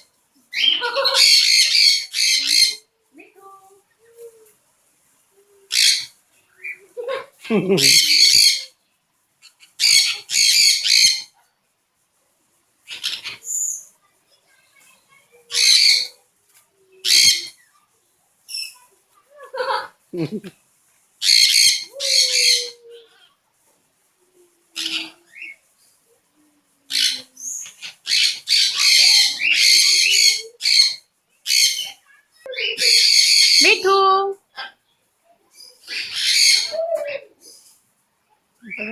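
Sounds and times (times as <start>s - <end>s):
birds squawking harshly: 0.5s - 2.9s, 5.7s - 6.8s, 7.8s - 8.7s, 9.5s - 11.3s, 12.9s - 13.9s, 15.5s - 16.2s, 17.0s - 17.6s, 21.2s - 23.3s, 24.8s - 25.6s, 26.9s - 34.8s, 35.7s - 37.7s.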